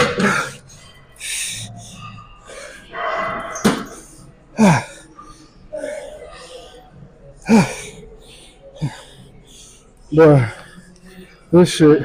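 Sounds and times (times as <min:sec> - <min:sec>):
man breathing hard: 0:00.0 - 0:11.5
man grunting: 0:04.6 - 0:05.0, 0:07.5 - 0:07.9.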